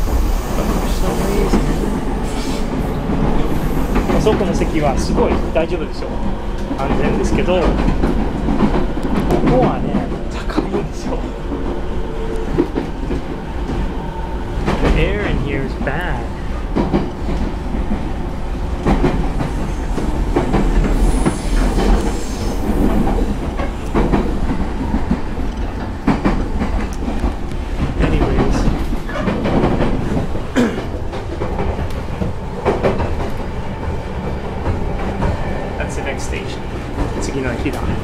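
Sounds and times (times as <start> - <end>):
train wheels rumbling on rail: 0.0 - 38.0
clicks and knocks from train car: 6.5 - 11.7, 14.6 - 15.4, 16.1 - 35.4.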